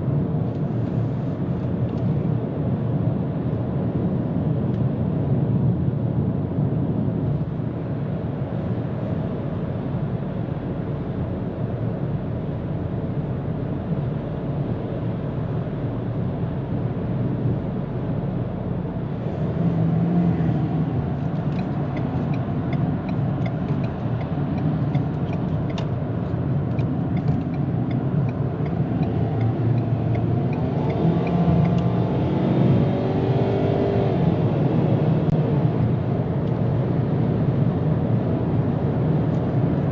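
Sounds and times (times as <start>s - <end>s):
road and wind noise: 0.0s - 39.9s
light ticks: 21.3s - 26.0s, 26.7s - 31.9s
engine tone rising: 26.8s - 34.8s.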